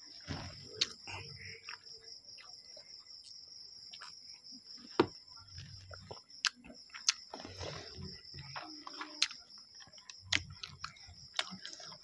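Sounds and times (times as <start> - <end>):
crickets trilling: 0.0 - 12.0
person chewing noodles: 5.5 - 12.0.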